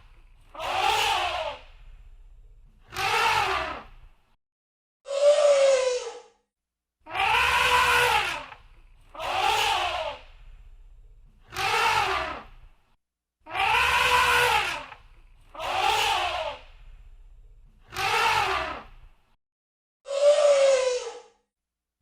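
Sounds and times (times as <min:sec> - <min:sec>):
elephant trumpeting: 0:07.1 - 0:10.2, 0:11.5 - 0:12.5, 0:13.5 - 0:15.0, 0:17.9 - 0:18.9.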